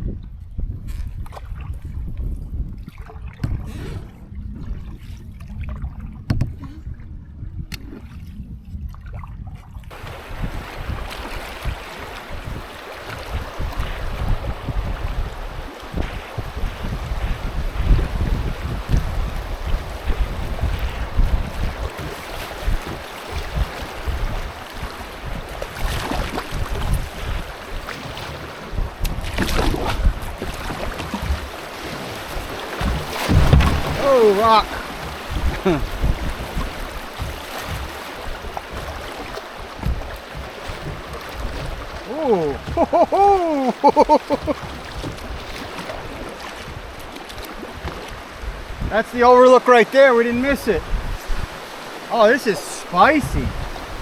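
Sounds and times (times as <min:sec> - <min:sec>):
wind rumble on microphone: 0:00.0 - 0:49.3, 0:50.4 - 0:52.1, 0:52.8 - 0:54.0
water sloshing: 0:09.9 - 0:54.0
sharp knocks: 0:32.8 - 0:34.0.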